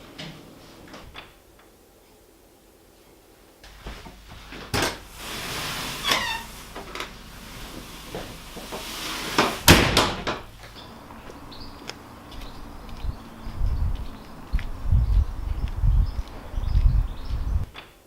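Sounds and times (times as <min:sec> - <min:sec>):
door squeak: 0:05.8 - 0:06.9
knocks and door shutting: 0:09.4 - 0:10.5.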